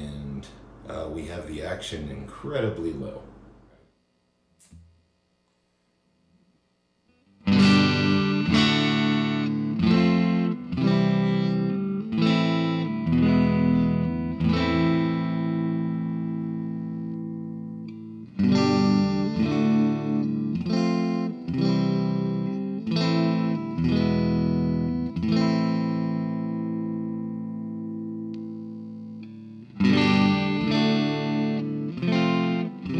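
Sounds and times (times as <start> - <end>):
electric guitar strumming chords: 7.2 - 32.9.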